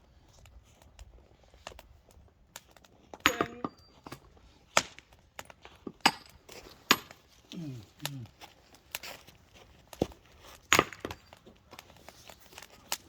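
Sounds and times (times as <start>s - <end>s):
ringing clink: 3.3s - 4.2s.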